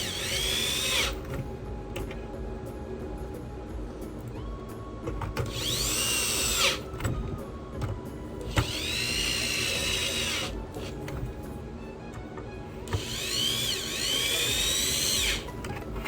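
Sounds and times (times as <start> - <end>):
electric screwdriver whirring: 0.0 - 1.4, 5.4 - 7.0, 8.5 - 11.3, 12.8 - 15.6.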